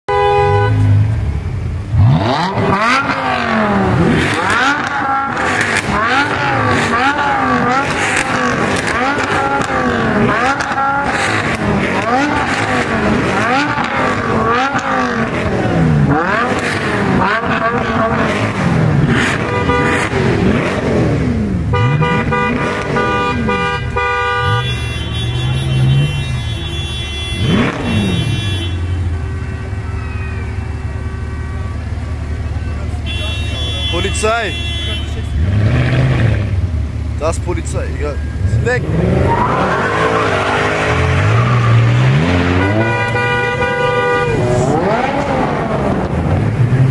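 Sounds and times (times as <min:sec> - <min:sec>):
car horn blasts: 0:00.0 - 0:01.3, 0:19.1 - 0:20.7, 0:21.6 - 0:36.2, 0:41.0 - 0:45.2
car engines revving: 0:00.1 - 0:46.9.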